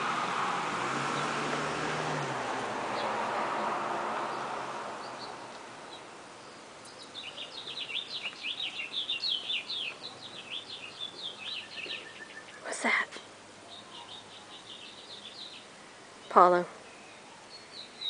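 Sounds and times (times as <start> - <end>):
songbird chirping: 0.9 - 18.0.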